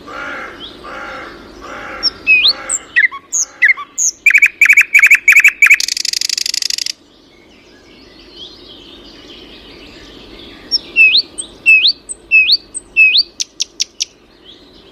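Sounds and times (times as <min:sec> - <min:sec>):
distant bird warbling: 0:00.0 - 0:07.0, 0:10.4 - 0:14.2
bird trilling: 0:00.2 - 0:07.0, 0:10.6 - 0:14.2.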